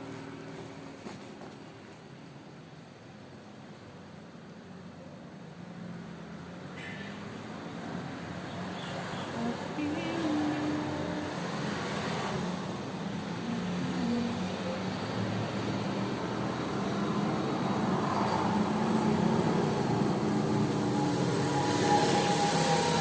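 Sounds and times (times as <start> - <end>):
vehicle engine and traffic noise: 0.0 - 23.0.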